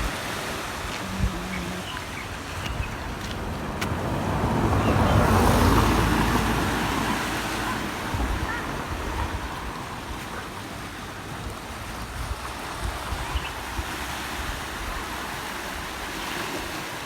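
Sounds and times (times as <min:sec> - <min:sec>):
wind rumbling on microphone: 0:00.0 - 0:16.8
sea wave breaking: 0:00.0 - 0:17.0.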